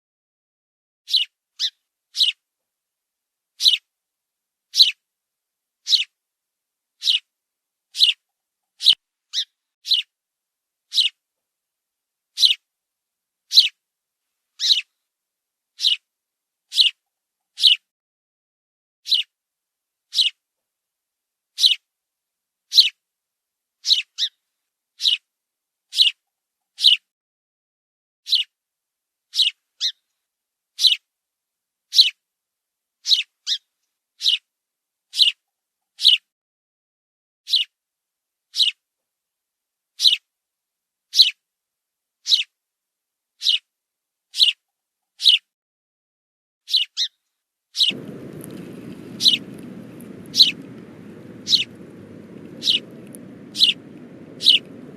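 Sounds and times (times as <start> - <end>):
high bird chirps: 7.0 - 7.2, 46.7 - 47.1, 47.8 - 54.9
low steady hiss: 47.8 - 54.9.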